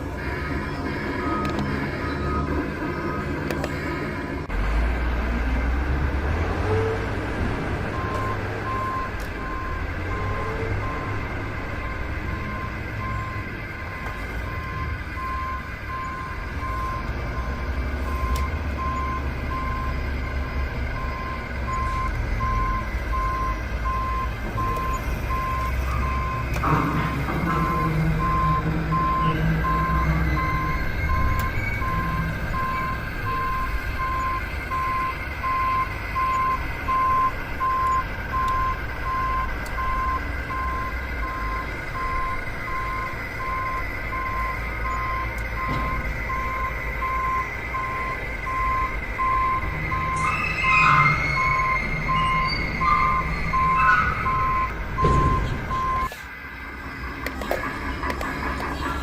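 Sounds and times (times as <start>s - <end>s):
reversing alarm beeping: 0.0s - 4.5s, 7.8s - 59.0s
low engine rumble: 0.0s - 59.0s.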